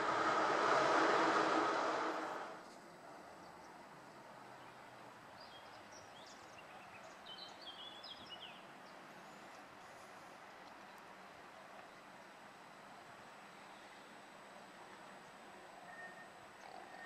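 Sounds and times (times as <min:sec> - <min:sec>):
faint station ambience hiss: 0:00.0 - 0:05.3, 0:09.0 - 0:17.0.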